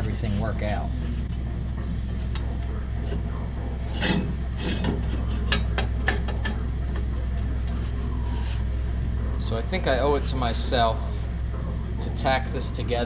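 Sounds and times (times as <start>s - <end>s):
metal scrape: 3.8s - 6.6s.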